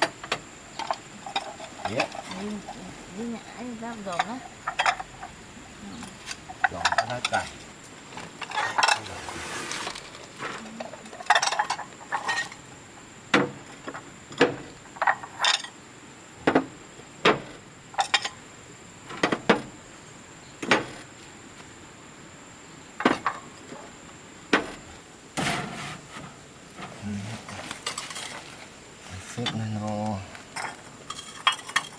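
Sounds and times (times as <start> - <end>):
hard objects knocking: 0.0 - 9.4, 16.4 - 18.3
rustling scrapes: 6.0 - 12.6, 24.6 - 29.4.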